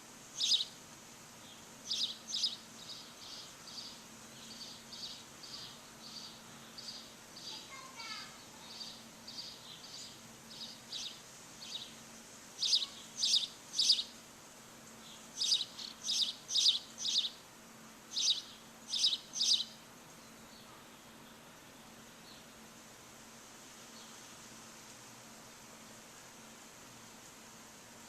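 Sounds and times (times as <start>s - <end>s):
faint steady hum: 0.0s - 28.0s
songbird chirping: 0.4s - 0.8s, 1.4s - 14.2s, 14.8s - 22.7s.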